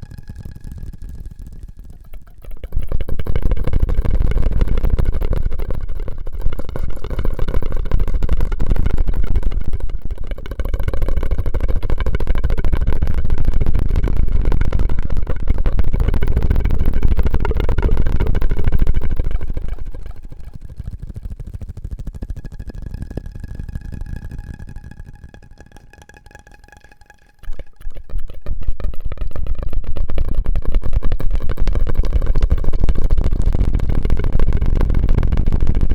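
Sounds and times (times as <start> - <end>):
mouth and straw sounds: 22.8 - 30.7.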